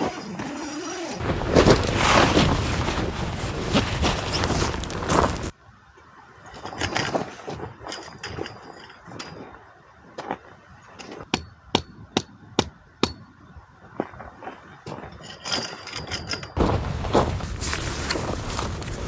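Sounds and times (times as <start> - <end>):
loud rustling noise: 1.2 - 5.5, 16.6 - 19.0.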